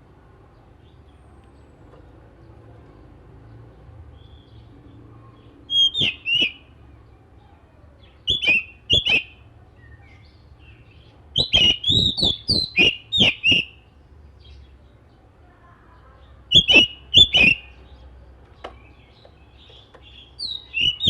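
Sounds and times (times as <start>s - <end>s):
bird giving sharp call notes: 5.7s - 6.7s, 8.3s - 9.4s, 11.4s - 13.8s, 16.5s - 17.7s, 20.4s - 21.0s.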